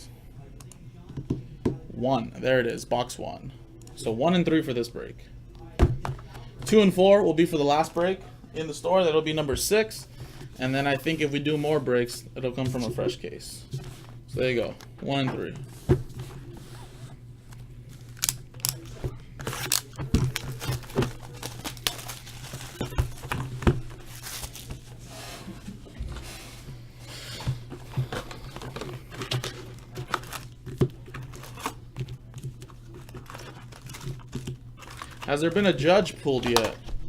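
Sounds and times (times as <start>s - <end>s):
steady low hum: 0.0s - 37.0s
plastic wrap crinkling and tearing: 17.9s - 25.0s, 28.3s - 35.8s.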